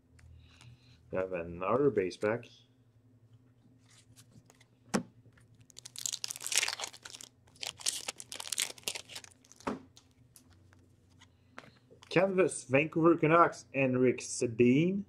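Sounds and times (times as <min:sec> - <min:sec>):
foil wrapper tearing and crinkling: 0:05.6 - 0:10.1.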